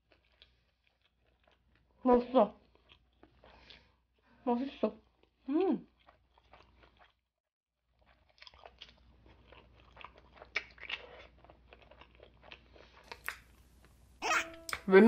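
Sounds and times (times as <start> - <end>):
close chewing with wet crunches: 0.0 - 2.0, 2.6 - 3.9, 5.0 - 7.2, 7.9 - 13.6.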